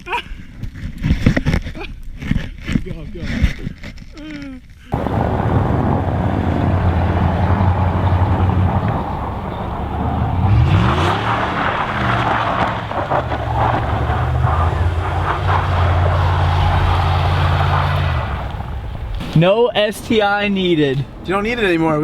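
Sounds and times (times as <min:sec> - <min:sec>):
car engine revving: 0:05.0 - 0:18.7
tyres rushing through snow: 0:05.0 - 0:19.4.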